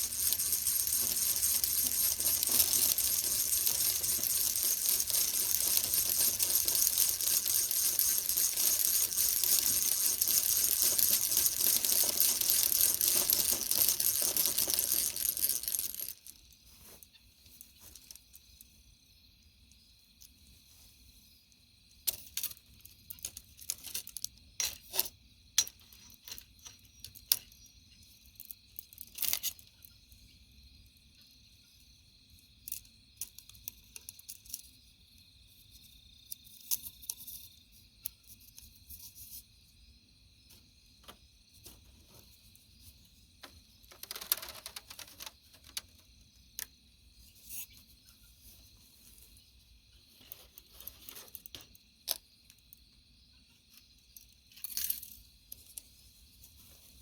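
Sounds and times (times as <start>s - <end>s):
crackling rustles: 0.0s - 18.4s.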